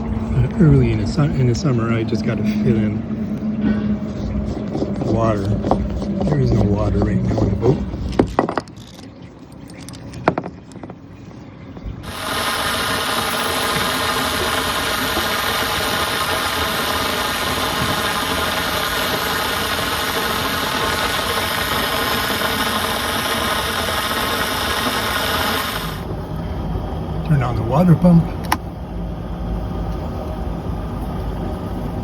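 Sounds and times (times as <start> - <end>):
motor running with hiss: 12.0 - 26.1.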